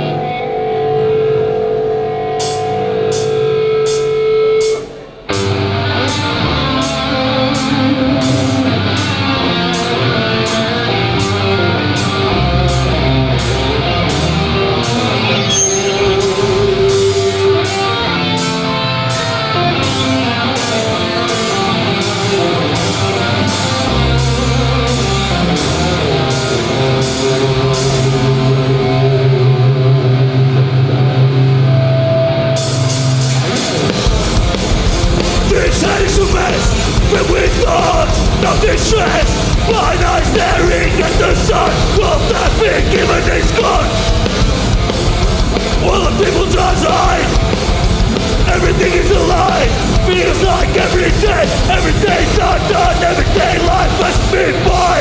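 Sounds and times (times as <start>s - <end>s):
held guitar notes ringing: 0.0s - 37.2s
punk band playing live: 0.0s - 55.0s.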